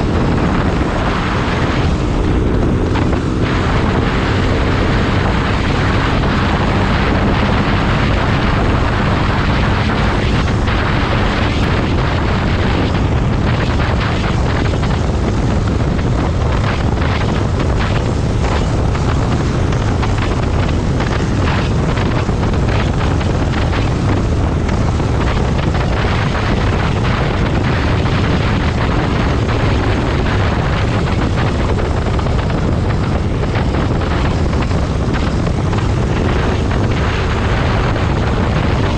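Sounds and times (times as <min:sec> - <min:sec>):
motorcycle engine running: 0:00.0 - 0:38.9
wind on microphone: 0:00.0 - 0:38.9.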